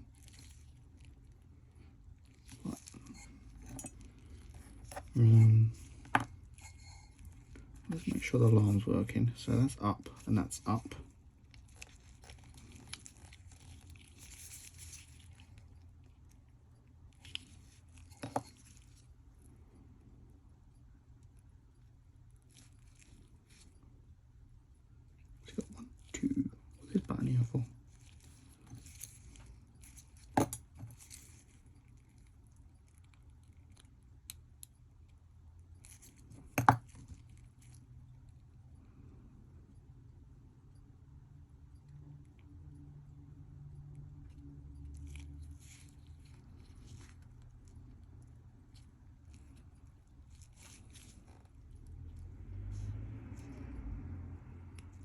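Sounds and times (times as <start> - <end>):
watch parts clicking and rustling: 0.0 - 20.1, 20.7 - 38.8, 44.1 - 53.6.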